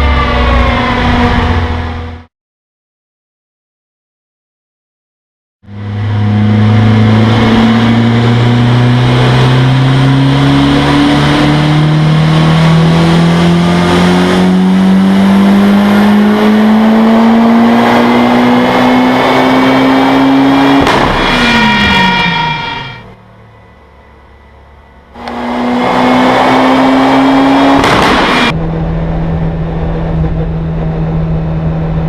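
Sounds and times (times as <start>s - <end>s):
car engine at full throttle: 5.6s - 32.0s
sharp engine crack: 20.7s - 23.2s, 27.8s - 28.6s.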